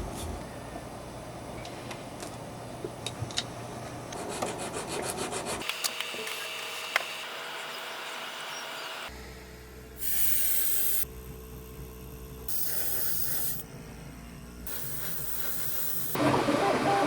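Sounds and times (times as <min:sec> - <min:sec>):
spray paint hissing: 0:10.0 - 0:11.1, 0:12.5 - 0:13.7, 0:14.7 - 0:16.2.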